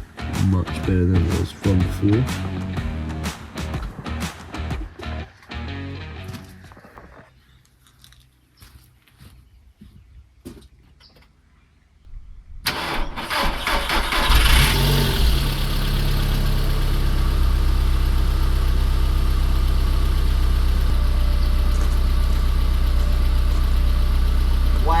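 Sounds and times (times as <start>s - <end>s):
car engine starting and idling: 0.0s - 6.6s, 12.5s - 25.0s.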